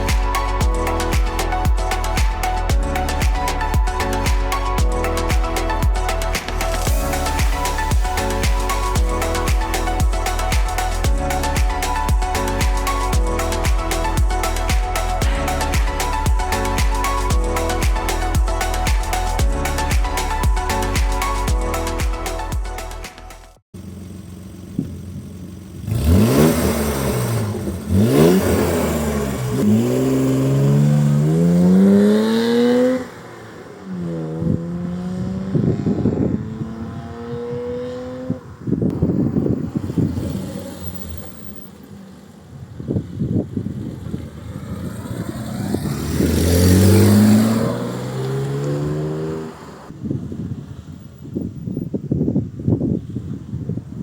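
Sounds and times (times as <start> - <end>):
car engine idling and revving: 0.0 - 51.8
car engine accelerating past: 25.8 - 38.7, 43.8 - 49.9
tyre and wind noise: 34.0 - 54.0.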